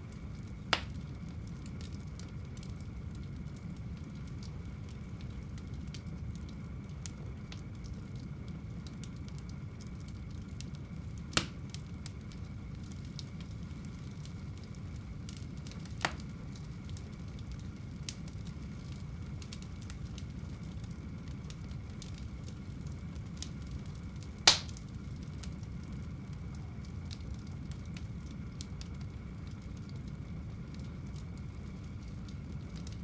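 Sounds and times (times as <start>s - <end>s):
faint fire crackles: 0.0s - 33.0s
fireplace flames rumbling: 0.0s - 33.0s
sharp fire pops: 0.5s - 1.1s, 11.3s - 11.8s, 15.7s - 20.0s, 24.2s - 25.5s.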